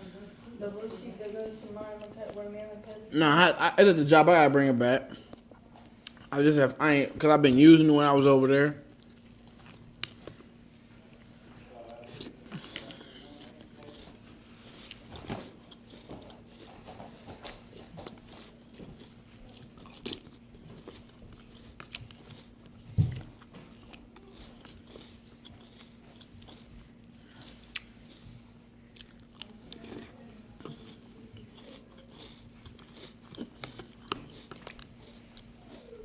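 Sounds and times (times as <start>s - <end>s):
faint steady hum: 0.0s - 36.0s
person chewing crunchy cereal: 7.4s - 36.0s.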